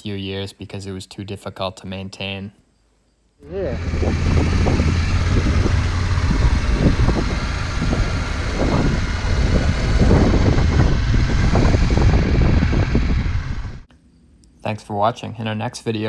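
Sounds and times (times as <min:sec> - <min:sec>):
motorcycle engine rumbling: 0:03.4 - 0:13.9
wind rushing over microphone: 0:03.4 - 0:13.9.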